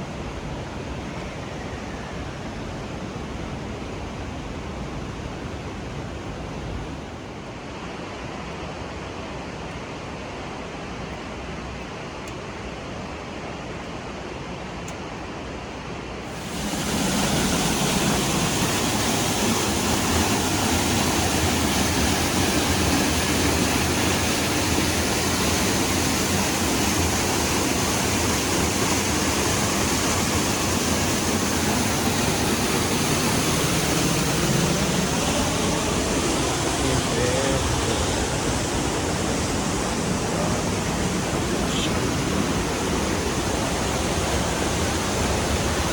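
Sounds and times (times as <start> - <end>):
waterfall rushing: 16.3 - 45.9.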